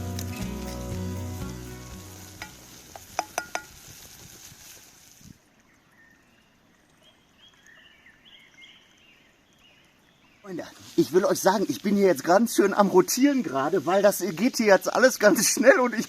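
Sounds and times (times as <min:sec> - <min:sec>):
onions sizzling in pot: 0:00.0 - 0:05.4, 0:10.7 - 0:16.0.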